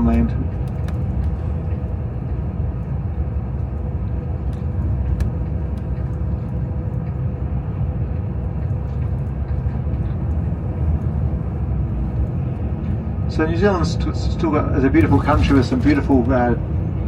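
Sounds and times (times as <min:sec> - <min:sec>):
road and engine rumble: 0:00.0 - 0:17.0.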